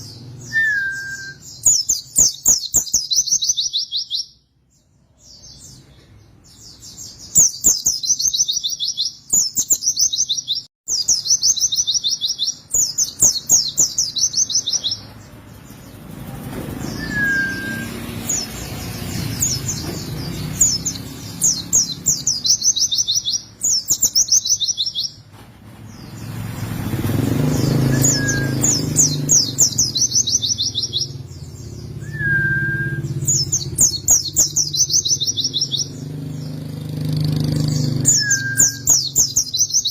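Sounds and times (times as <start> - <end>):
bird singing trilled phrases: 0.0 - 25.3, 25.9 - 39.9
short bird whistles: 0.5 - 3.0, 16.9 - 18.0, 27.9 - 28.8, 32.0 - 33.2, 38.1 - 39.1.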